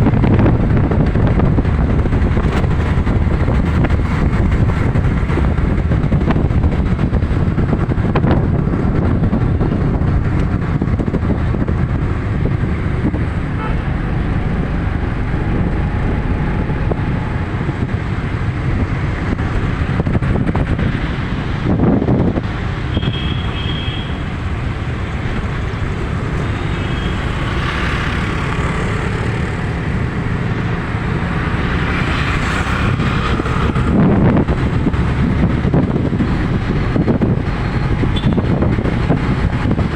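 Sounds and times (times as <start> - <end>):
moving vehicle rumble: 0.0 - 39.9.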